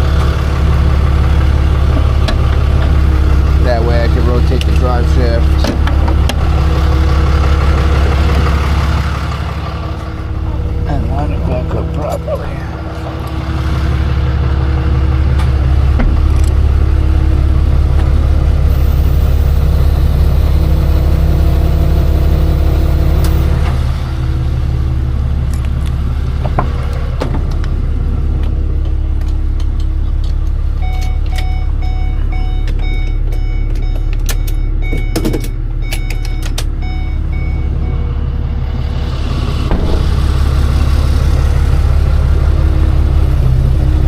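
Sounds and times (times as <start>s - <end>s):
truck engine idling: 0.0s - 44.0s
vehicle warning chime beeping: 30.8s - 38.6s
metal scraping clatter: 39.5s - 42.2s.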